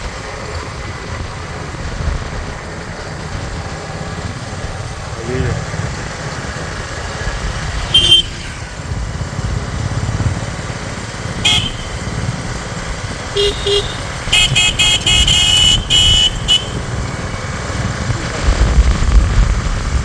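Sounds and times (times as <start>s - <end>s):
motorcycle engine running: 0.0s - 20.0s
vehicle horn tooting: 7.9s - 8.6s, 11.4s - 12.0s, 13.4s - 16.9s.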